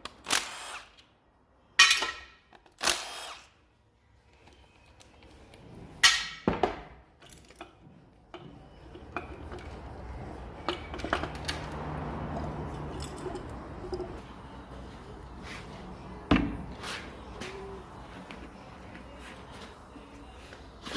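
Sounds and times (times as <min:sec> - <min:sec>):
metal clinks: 0:12.4 - 0:14.2.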